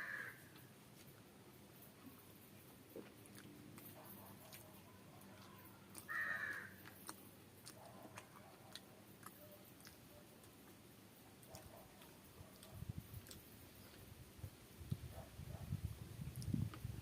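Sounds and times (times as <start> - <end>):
crow cawing: 0.0 - 0.4, 6.1 - 6.8
person chewing food: 2.0 - 15.1.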